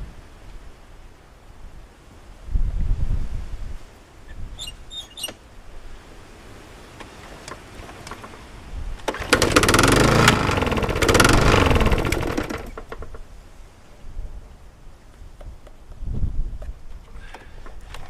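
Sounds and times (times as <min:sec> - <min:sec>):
lawnmower engine starting and running: 0:07.0 - 0:13.4.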